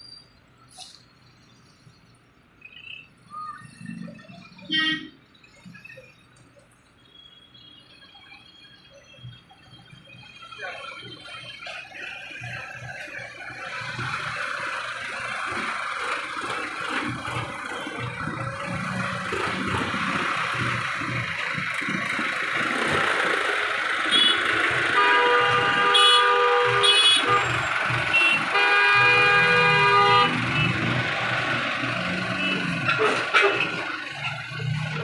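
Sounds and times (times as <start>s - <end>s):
road traffic: 0.0s - 35.0s
vehicle horns honking: 4.7s - 5.2s, 24.0s - 31.1s, 32.1s - 33.8s.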